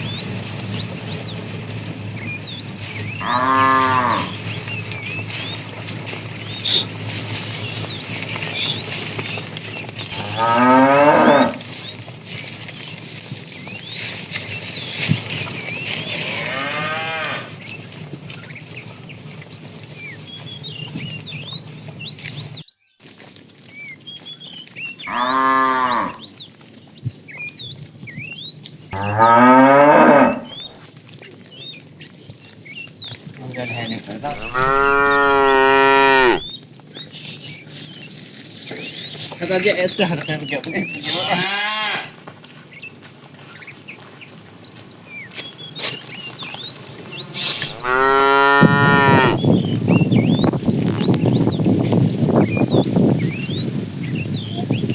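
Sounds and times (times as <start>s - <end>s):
cattle mooing: 3.2s - 4.4s, 10.1s - 11.7s, 16.2s - 17.5s, 25.1s - 26.2s, 29.0s - 30.7s, 34.2s - 36.5s, 41.2s - 42.2s, 47.6s - 49.4s.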